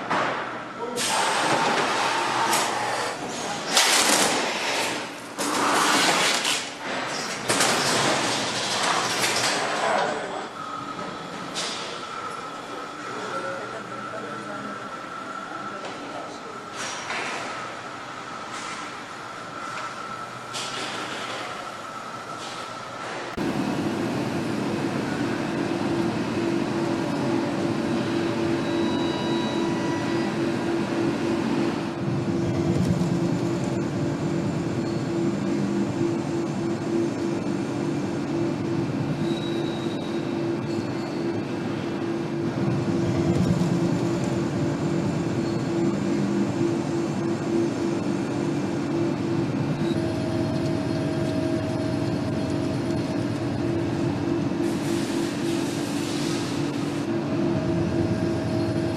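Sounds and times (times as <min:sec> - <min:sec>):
mechanical hum: 0:00.0 - 0:58.9.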